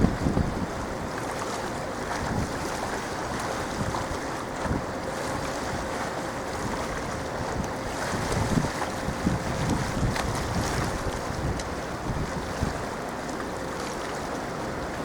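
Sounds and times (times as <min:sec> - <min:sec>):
wind on microphone: 0:00.0 - 0:01.2, 0:02.0 - 0:12.9
choppy water: 0:00.0 - 0:15.0.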